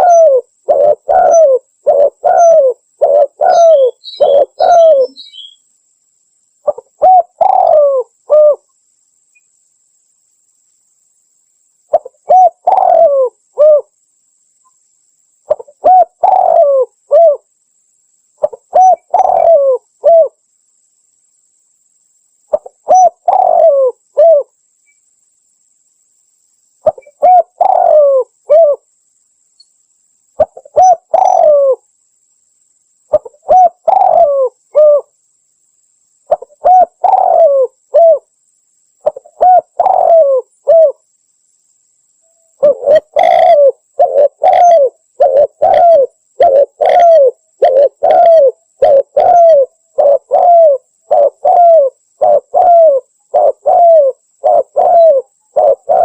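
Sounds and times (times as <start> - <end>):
dove cooing: 0.0 - 5.6, 6.6 - 8.6, 11.9 - 13.9, 15.5 - 17.5, 18.4 - 20.4, 22.5 - 24.5, 26.8 - 28.8, 30.4 - 31.8, 33.1 - 35.1, 36.3 - 38.3, 39.0 - 41.0, 42.6 - 56.0.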